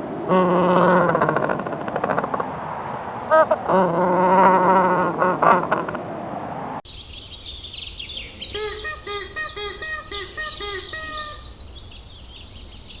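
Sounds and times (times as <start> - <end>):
high bird chirps: 6.9 - 13.0
short pitched bird calls: 7.5 - 12.0.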